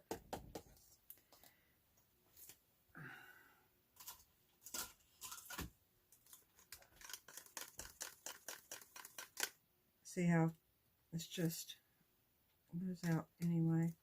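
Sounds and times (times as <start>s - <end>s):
breathy noise: 2.9s - 3.7s
clicks and taps of supplies handled: 13.0s - 14.0s.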